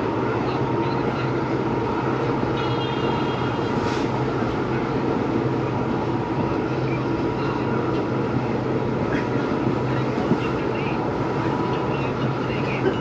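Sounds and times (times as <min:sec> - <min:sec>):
diesel locomotive engine humming: 0:00.0 - 0:13.0.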